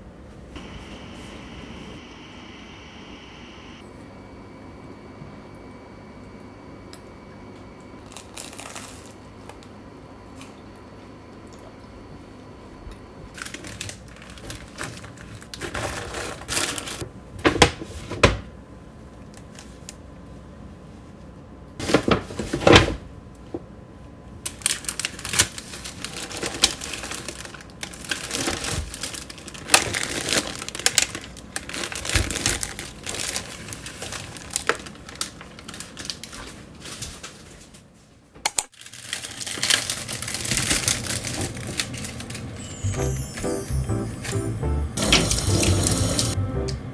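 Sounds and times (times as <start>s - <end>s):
plastic packaging crinkling: 8.0s - 9.2s, 13.4s - 17.0s, 24.5s - 37.8s, 38.7s - 43.2s.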